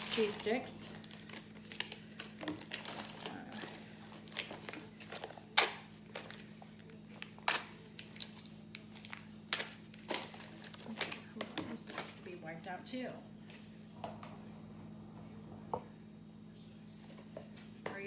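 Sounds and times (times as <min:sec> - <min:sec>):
plastic wrappers crinkling: 0:00.0 - 0:12.3.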